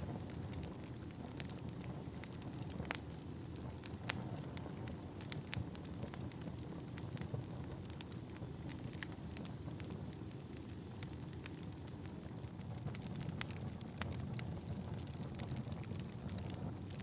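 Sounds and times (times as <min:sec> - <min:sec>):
fire rumbling: 0:00.0 - 0:17.0
logs crackling and popping: 0:00.0 - 0:17.0
faint high whistle: 0:06.8 - 0:12.4.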